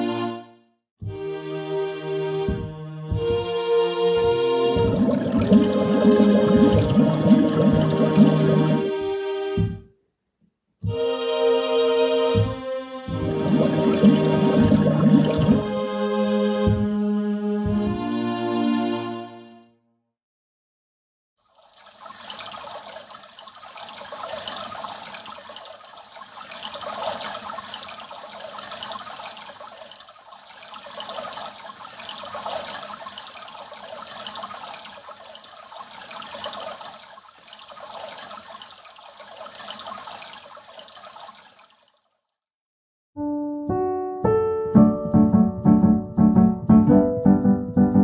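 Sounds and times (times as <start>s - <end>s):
water washing in waves: 4.2s - 9.0s, 13.1s - 15.8s, 21.7s - 41.8s.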